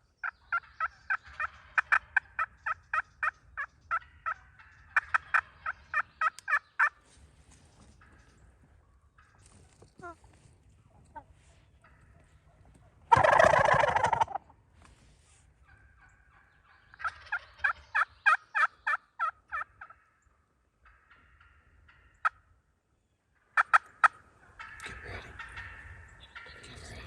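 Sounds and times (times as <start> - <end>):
turkey gobbling: 0.2 - 7.1, 9.1 - 14.6, 15.6 - 22.5, 23.3 - 27.0
hen turkey yelps: 0.5 - 7.0, 11.1 - 14.5, 15.3 - 20.0, 23.4 - 27.0.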